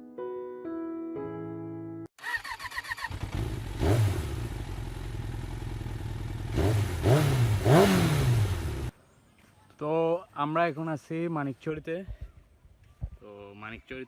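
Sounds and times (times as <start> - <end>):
motorcycle engine revving: 2.2 - 8.9.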